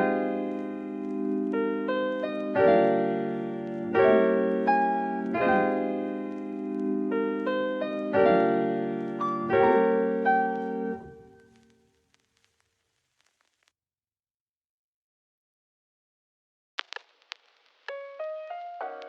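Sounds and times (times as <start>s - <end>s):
soft keyboard chords: 0.0s - 11.5s.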